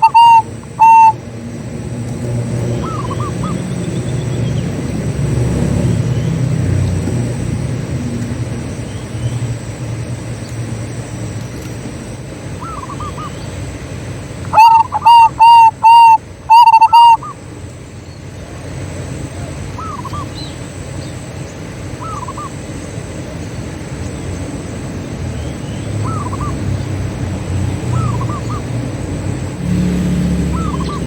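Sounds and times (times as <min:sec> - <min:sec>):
dove cooing: 0:00.0 - 0:01.2, 0:02.7 - 0:03.8, 0:12.6 - 0:13.4, 0:14.5 - 0:17.4, 0:19.4 - 0:20.3, 0:26.0 - 0:26.8, 0:27.7 - 0:29.0, 0:30.3 - 0:31.0.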